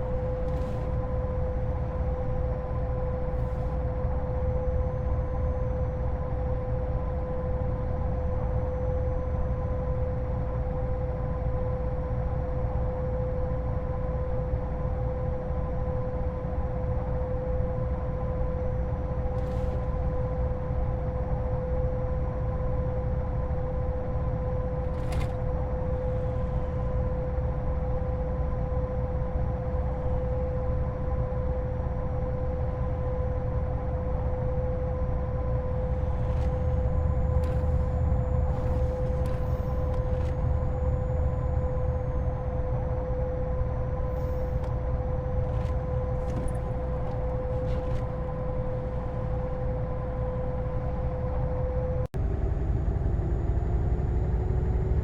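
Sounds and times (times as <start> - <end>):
diesel truck engine drone: 0.0 - 55.0.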